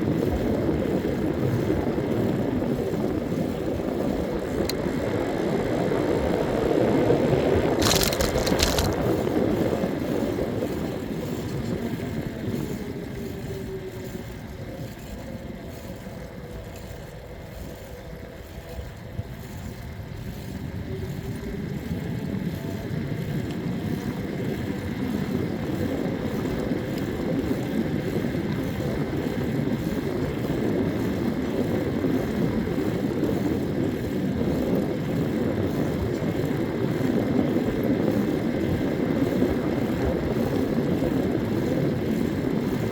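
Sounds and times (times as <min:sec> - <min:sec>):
faint engine drone: 0:00.0 - 0:42.9
wind and road noise: 0:00.0 - 0:42.9.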